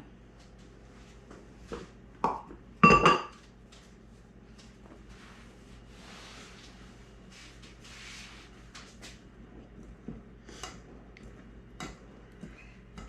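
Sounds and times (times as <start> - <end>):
soft scraping of dough in bowl: 5.0 - 8.6.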